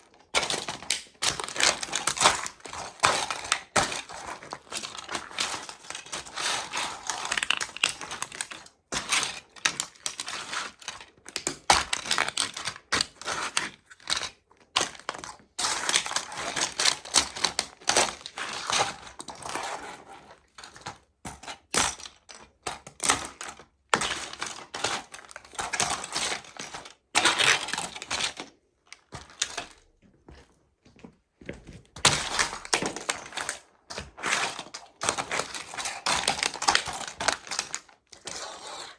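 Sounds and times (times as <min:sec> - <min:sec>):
toy trucks crushed underfoot: 0:00.0 - 0:30.5, 0:31.5 - 0:38.9.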